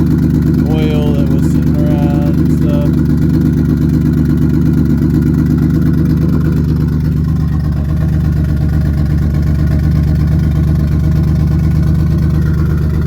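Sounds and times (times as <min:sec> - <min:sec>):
loud car engine running: 0:00.0 - 0:13.0.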